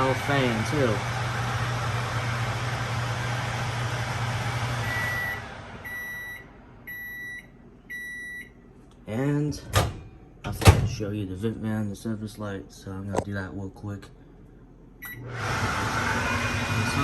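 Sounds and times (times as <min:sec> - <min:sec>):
microwave oven fan and hum: 0:00.0 - 0:17.0
microwave beeps: 0:04.8 - 0:08.6, 0:15.0 - 0:15.3.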